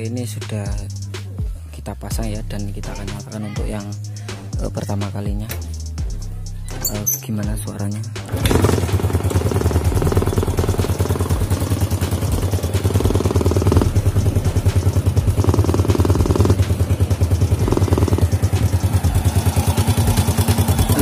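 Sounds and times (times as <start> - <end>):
exhaust popping: 8.2 - 21.0
motorcycle engine running: 8.3 - 21.0.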